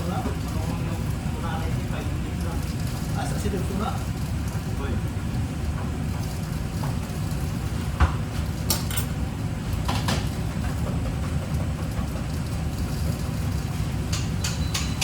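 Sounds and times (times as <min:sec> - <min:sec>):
steady low hum: 0:00.0 - 0:15.0
utensils and dishes clinking: 0:10.8 - 0:15.0.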